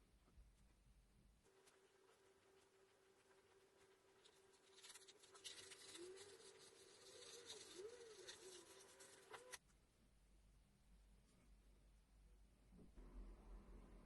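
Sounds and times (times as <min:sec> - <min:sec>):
faint scratching: 0:01.4 - 0:09.6.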